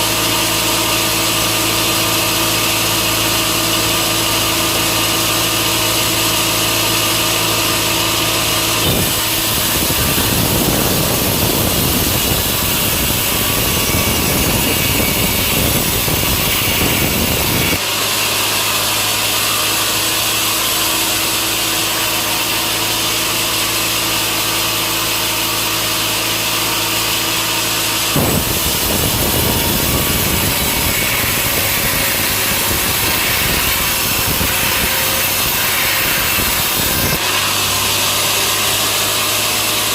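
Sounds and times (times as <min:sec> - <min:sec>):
saw cutting through log: 0:00.0 - 0:39.9
sawmill engine hum: 0:00.0 - 0:39.9.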